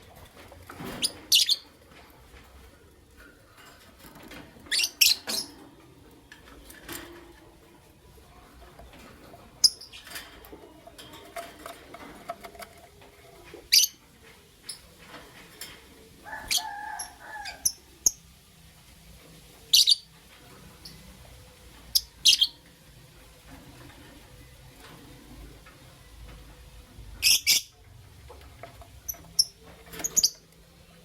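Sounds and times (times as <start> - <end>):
lovebirds chirping: 9.6 - 11.0, 19.6 - 20.2, 21.9 - 22.6, 27.2 - 27.9, 28.9 - 31.0.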